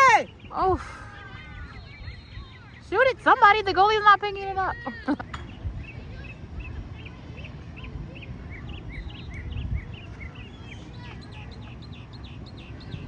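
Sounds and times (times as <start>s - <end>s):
bird chirping: 5.3s - 13.0s.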